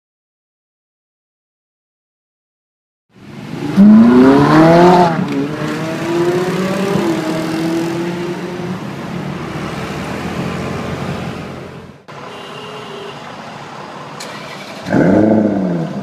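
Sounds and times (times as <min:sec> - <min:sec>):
street traffic noise: 0:03.1 - 0:16.0
car engine accelerating hard: 0:03.5 - 0:08.8, 0:14.2 - 0:16.0.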